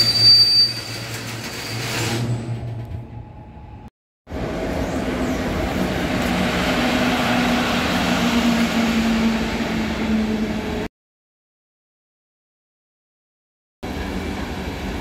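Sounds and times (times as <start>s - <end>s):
train passing: 2.6s - 10.9s.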